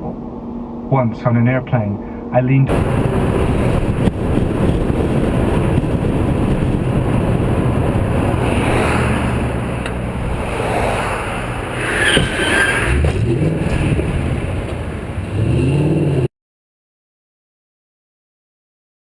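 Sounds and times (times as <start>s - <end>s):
car engine and tyre noise: 2.7s - 16.3s.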